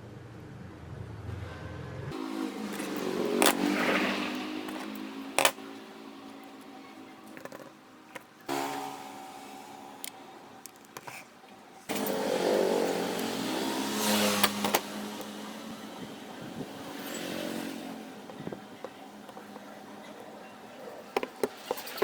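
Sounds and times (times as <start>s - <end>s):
power tool motor humming: 2.2s - 7.6s, 8.5s - 10.3s, 11.9s - 18.8s.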